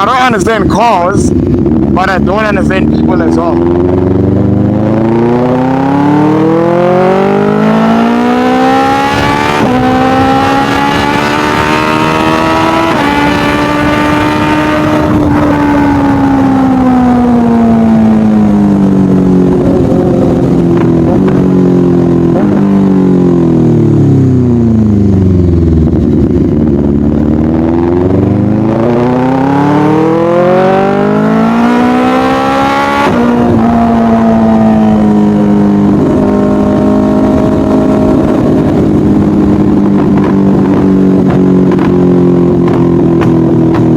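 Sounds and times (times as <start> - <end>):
motorcycle engine: 0.0 - 43.9.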